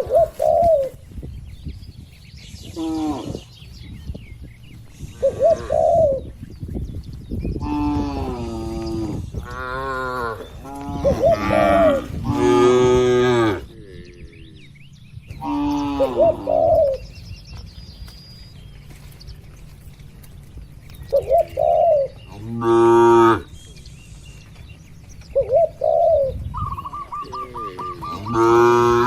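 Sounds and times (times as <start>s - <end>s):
doves cooing: 0.0s - 1.8s, 2.4s - 29.0s
cattle mooing: 7.6s - 14.6s, 15.4s - 16.5s, 22.3s - 23.6s, 27.0s - 29.0s.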